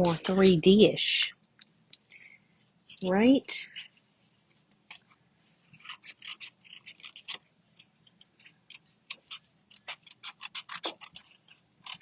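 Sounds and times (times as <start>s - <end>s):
scissors snipping paper: 5.7s - 12.0s.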